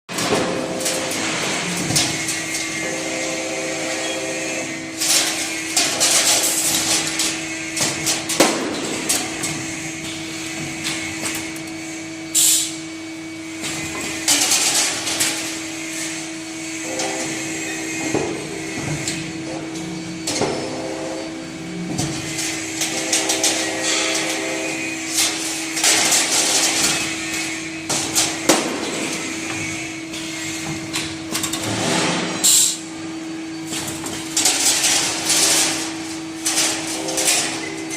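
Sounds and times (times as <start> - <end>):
machine clanks and knocks: 0.1 - 2.7, 5.0 - 11.7, 27.8 - 32.8
machine humming: 0.1 - 37.9.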